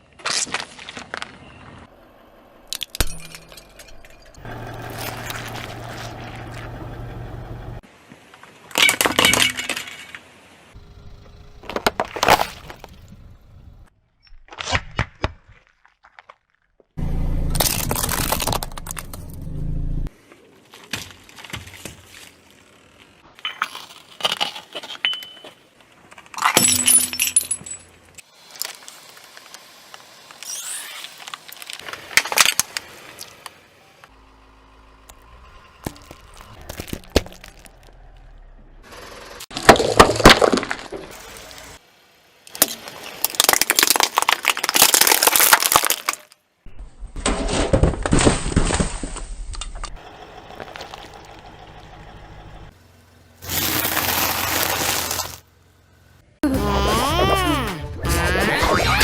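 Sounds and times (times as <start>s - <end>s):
objects crushed under car tyre: 17.5s - 19.4s, 35.8s - 38.4s, 39.5s - 41.5s, 42.5s - 46.4s, 47.2s - 49.7s, 53.4s - 55.5s.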